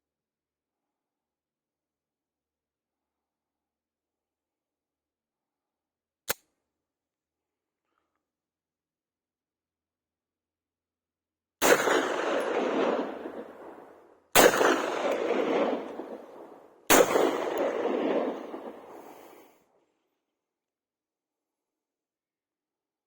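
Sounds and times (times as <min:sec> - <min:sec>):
pistol shots with echo: 0:11.6 - 0:19.4.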